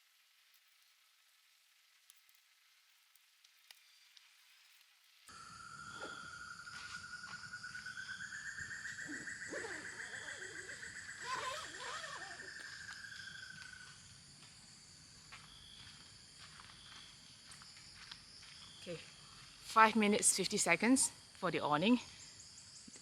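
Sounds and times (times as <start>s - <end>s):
cicada buzzing: 5.3s - 14.1s
chirping calls: 7.7s - 13.6s.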